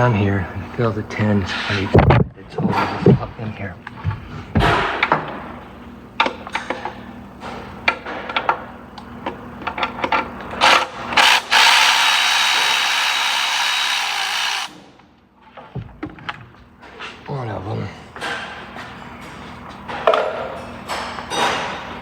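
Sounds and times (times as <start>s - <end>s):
power tool running: 10.6s - 14.8s.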